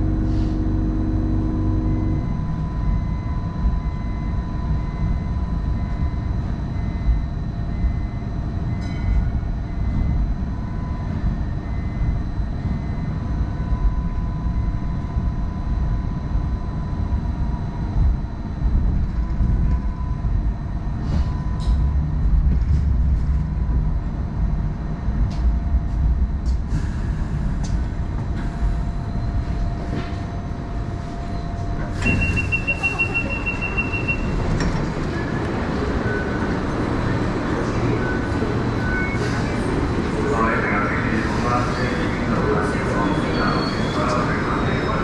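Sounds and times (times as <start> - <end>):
light rail vehicle running: 0.0 - 45.0
wheel squeal: 43.0 - 45.0.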